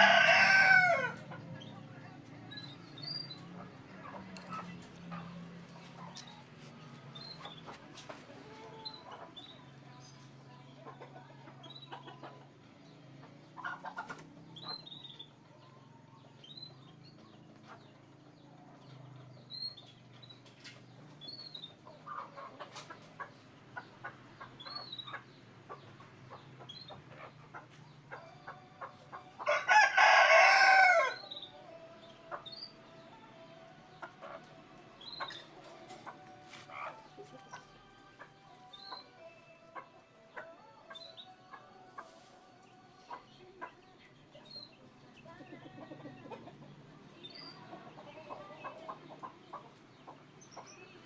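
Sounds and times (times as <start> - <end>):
rooster crowing: 0.0 - 1.2, 29.4 - 31.3.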